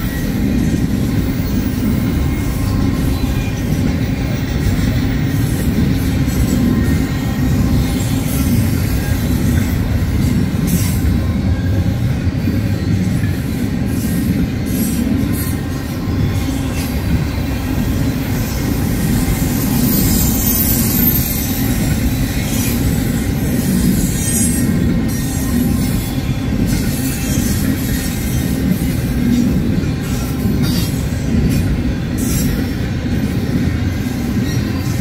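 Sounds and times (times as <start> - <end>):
train wheels rumbling on rails: 0.0 - 35.0
thin high wheel squeal: 17.8 - 28.2.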